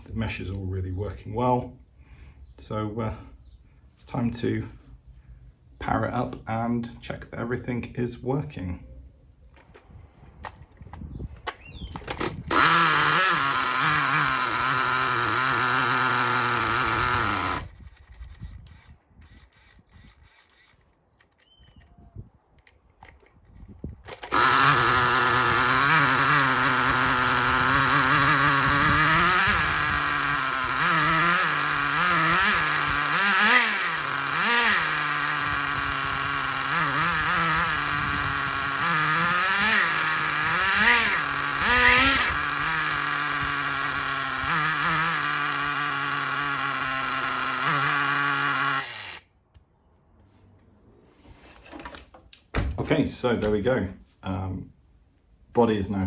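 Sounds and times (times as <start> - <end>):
small engine running and revving: 12.2 - 20.8, 24.3 - 49.2.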